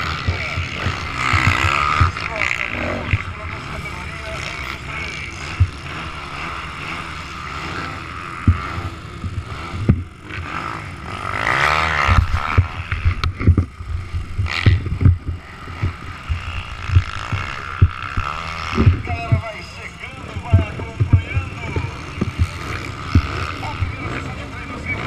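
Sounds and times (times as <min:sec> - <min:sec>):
motocross bike engines: 0:00.0 - 0:25.0
low thumps on microphone: 0:05.5 - 0:05.8, 0:09.2 - 0:10.1, 0:12.1 - 0:19.5, 0:20.3 - 0:23.4.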